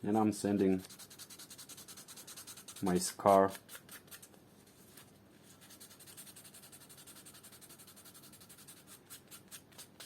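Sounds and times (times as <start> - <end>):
sandpaper rubbing on leather: 0.6 - 4.2, 5.6 - 10.0.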